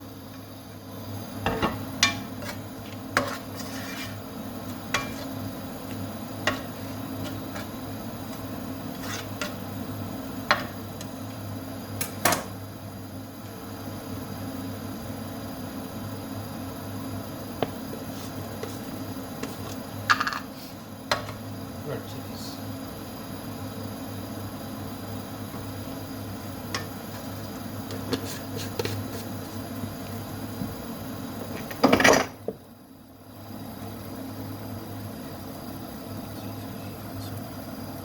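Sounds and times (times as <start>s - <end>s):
steady low hum: 0.0s - 31.8s
cookware and utensils clinking: 1.5s - 2.6s, 5.0s - 5.3s.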